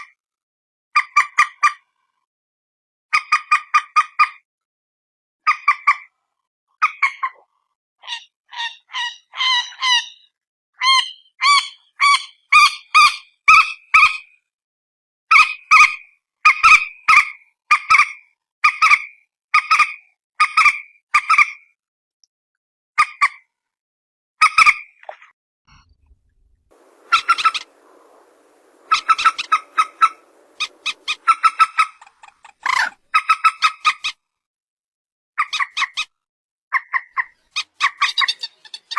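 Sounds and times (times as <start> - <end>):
faint low background noise: 25.9 - 32.9
moorhen honking calls: 26.8 - 33.0.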